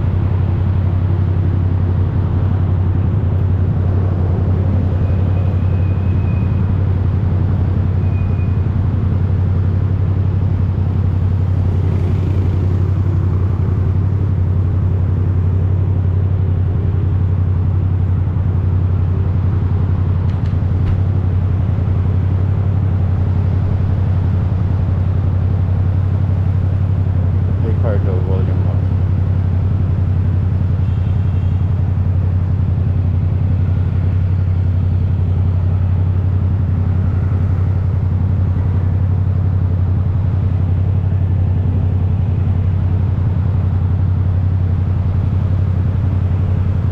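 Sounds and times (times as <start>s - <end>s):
motorcycle engine running loud: 1.6s - 17.6s.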